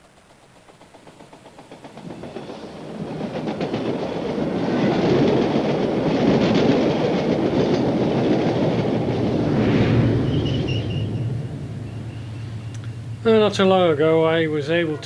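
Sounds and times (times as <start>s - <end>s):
model train wheels clicking: 0.0s - 9.4s.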